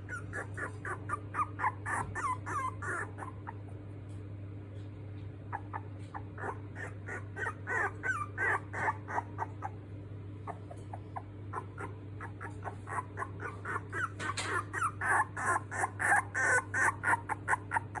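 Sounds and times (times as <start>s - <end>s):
puppies squeaking and whimpering: 0.0s - 3.8s, 5.5s - 18.0s
steady low hum: 0.0s - 18.0s.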